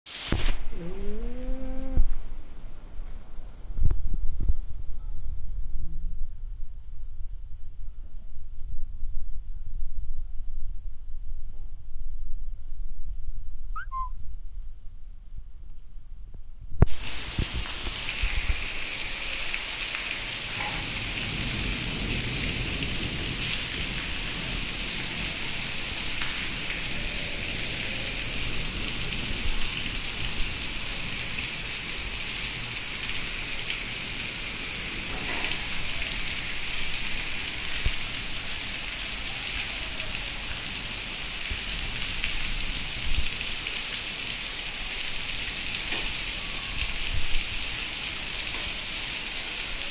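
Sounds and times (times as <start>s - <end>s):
heavy rain pouring: 16.9s - 49.9s.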